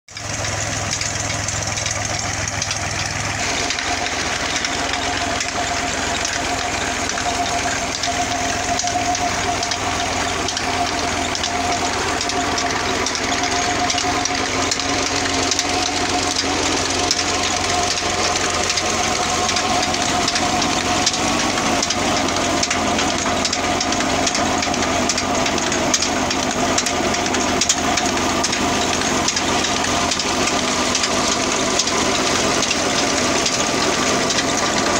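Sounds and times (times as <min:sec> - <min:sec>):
tractor diesel engine running: 0:00.0 - 0:34.9
steady whine: 0:00.1 - 0:34.9.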